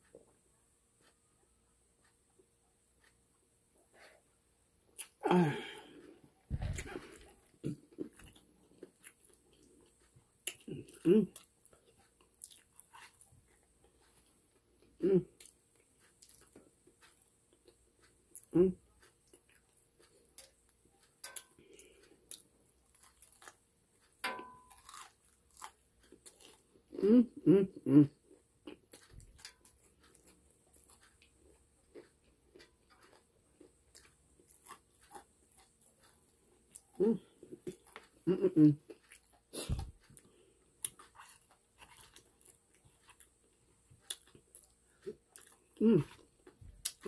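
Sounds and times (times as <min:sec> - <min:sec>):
person chewing food: 0:00.0 - 0:47.0
crunching fried chicken: 0:19.6 - 0:26.7, 0:28.8 - 0:38.2.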